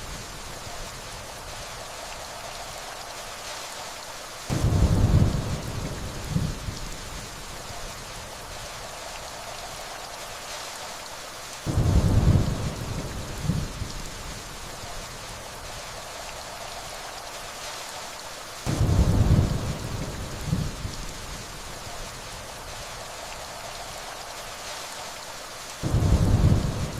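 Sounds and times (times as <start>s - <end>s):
steady rainfall: 0.0s - 26.9s
distant thunder rumble: 4.5s - 6.9s, 11.7s - 13.9s, 18.7s - 21.0s, 25.8s - 26.9s.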